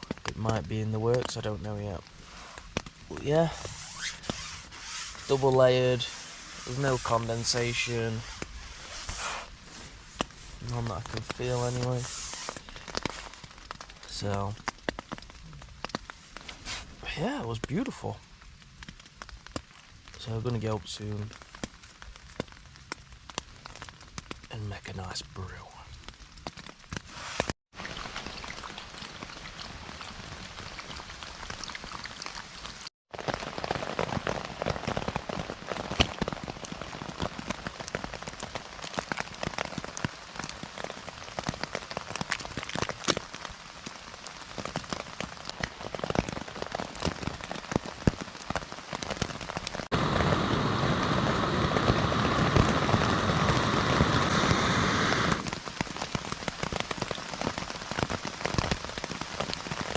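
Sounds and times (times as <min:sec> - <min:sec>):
rain drops ticking on a tent: 0:00.0 - 0:59.9.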